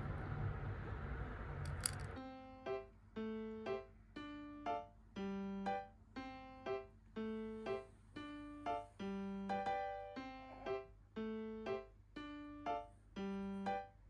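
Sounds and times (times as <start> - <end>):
slow piano-like keyboard pattern: 2.1 - 14.0.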